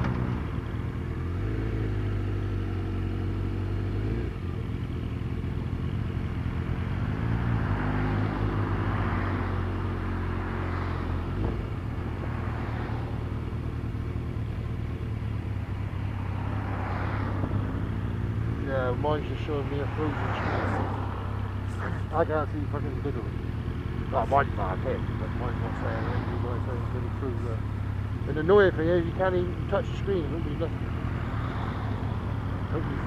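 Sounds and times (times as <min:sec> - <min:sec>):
road and wind noise: 0:00.0 - 0:33.0
vehicle engine running: 0:00.0 - 0:33.0.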